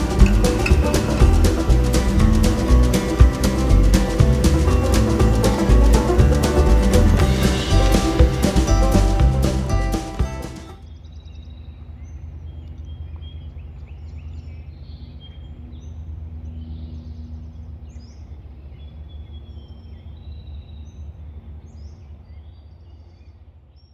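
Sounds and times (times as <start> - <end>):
birds chirping and whistling: 0.0 - 10.7
low steady hum: 0.0 - 10.8.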